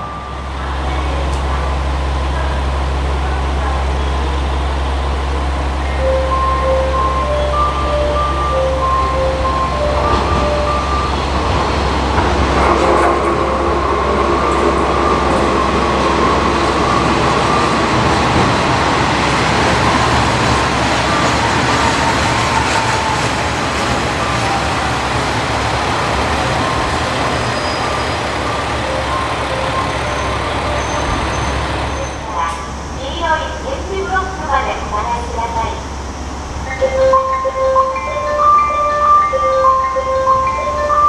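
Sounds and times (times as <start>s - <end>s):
wheels on rail: 0.0s - 34.5s
railcar engine drone: 0.0s - 41.0s.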